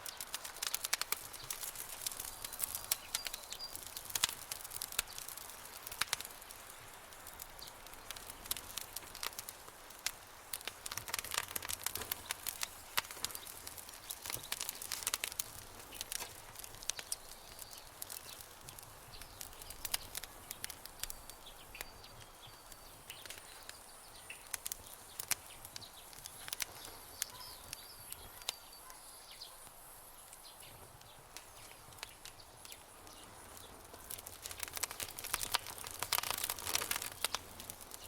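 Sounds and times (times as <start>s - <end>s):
campfire crackling and popping: 0.0s - 38.0s
faint bird chirps: 19.0s - 33.8s.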